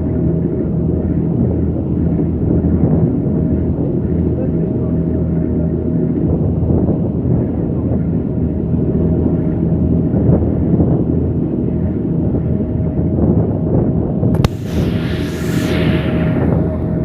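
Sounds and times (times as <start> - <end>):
constant hum: 14.4 - 17.0.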